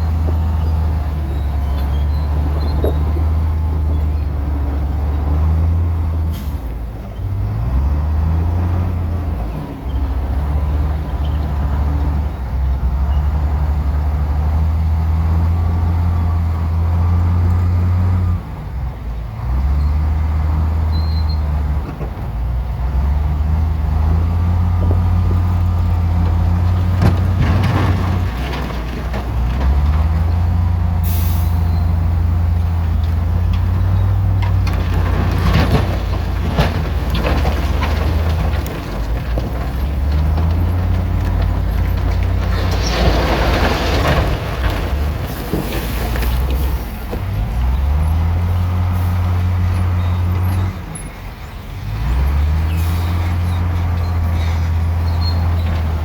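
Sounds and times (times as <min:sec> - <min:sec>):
bulldozer diesel engine working: 0:00.0 - 0:56.0
rock and soil clattering: 0:23.0 - 0:56.0.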